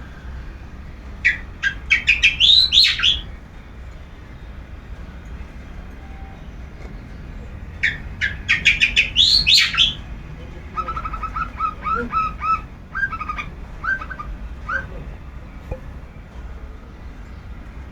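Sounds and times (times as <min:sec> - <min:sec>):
shrike calling harshly: 0:01.2 - 0:03.3, 0:07.8 - 0:15.4.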